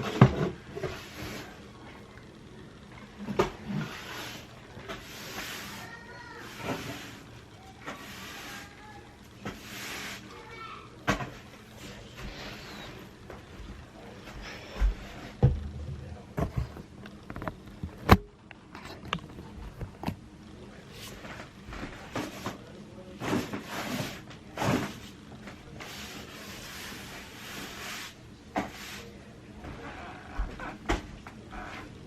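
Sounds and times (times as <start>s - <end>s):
objects knocking and thumping: 0.0s - 1.0s, 11.0s - 11.5s, 14.7s - 20.2s
rustling and scraping: 0.0s - 1.7s, 3.2s - 20.2s, 20.8s - 32.0s.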